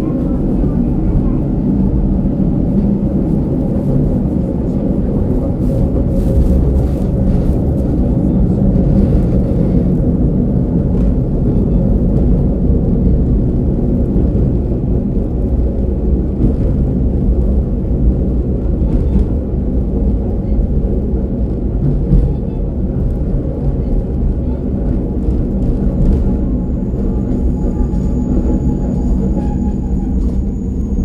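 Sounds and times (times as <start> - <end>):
muffled diesel engine rumble: 0.0 - 31.0
train wheels on rails: 0.0 - 31.0.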